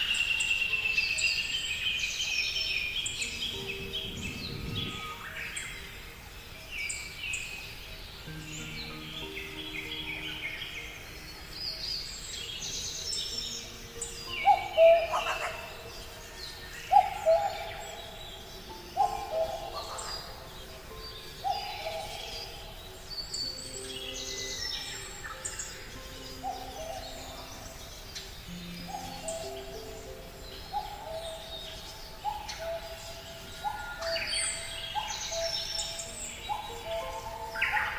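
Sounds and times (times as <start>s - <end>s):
bird chirps and twitters: 0.0s - 37.9s
bird hooting call: 14.2s - 16.0s, 16.9s - 20.8s.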